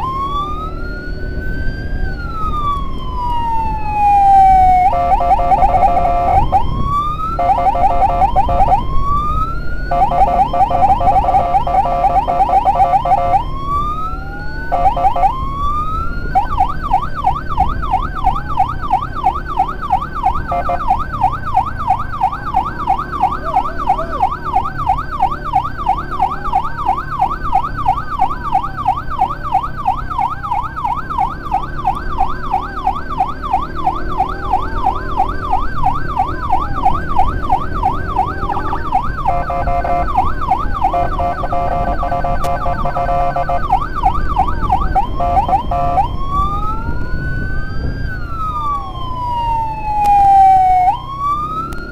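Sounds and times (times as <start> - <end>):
electronic emergency sirens: 0.0 - 51.9
vehicle engine running low: 0.0 - 51.9.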